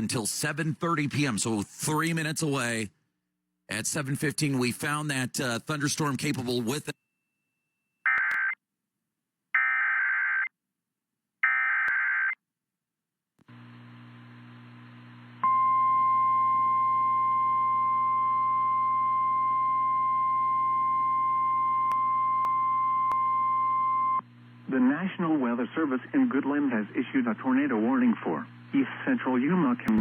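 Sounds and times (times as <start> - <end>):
faint hum: 13.4 - 30.0.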